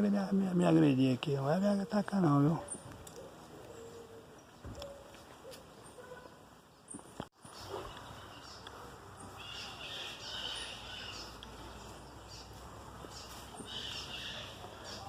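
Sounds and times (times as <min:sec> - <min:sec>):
faint bird calls: 0:07.4 - 0:15.0.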